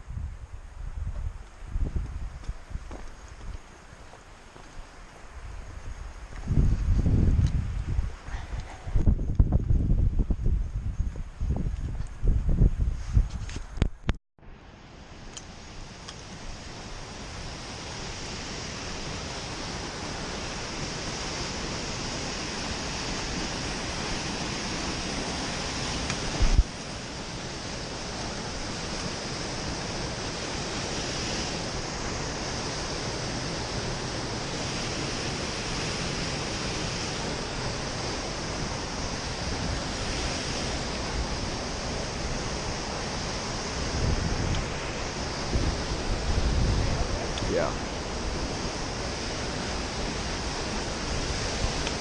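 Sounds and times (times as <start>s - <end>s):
waterfall roaring: 14.6s - 52.0s.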